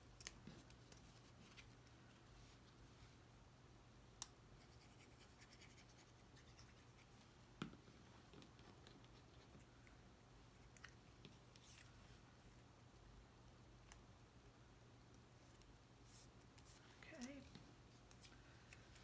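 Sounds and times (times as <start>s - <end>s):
soft scratching of cardstock: 0.2s - 3.2s.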